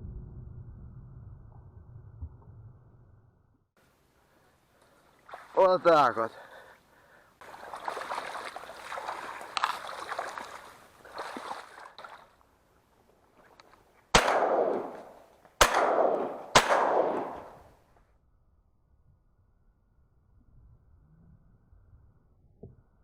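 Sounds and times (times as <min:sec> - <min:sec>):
water splashing: 0:04.8 - 0:06.7, 0:07.4 - 0:12.4
shotgun shots echoing: 0:14.1 - 0:17.7.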